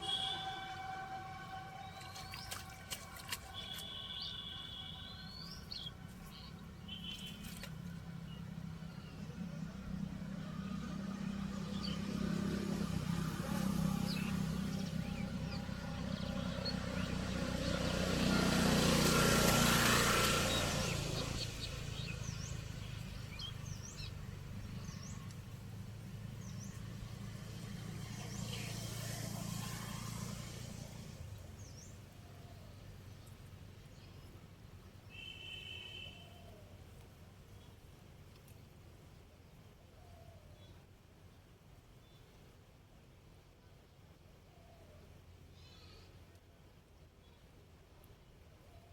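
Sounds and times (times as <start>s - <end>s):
birds chirping: 0.0s - 8.4s, 13.6s - 25.6s
engine running: 9.3s - 31.6s.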